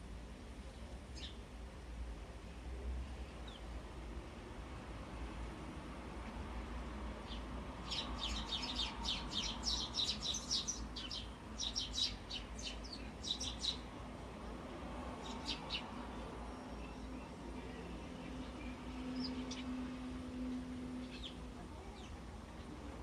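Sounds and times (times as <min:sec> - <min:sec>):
sparrows chirping: 0:00.6 - 0:01.4, 0:03.2 - 0:03.8, 0:07.2 - 0:23.0.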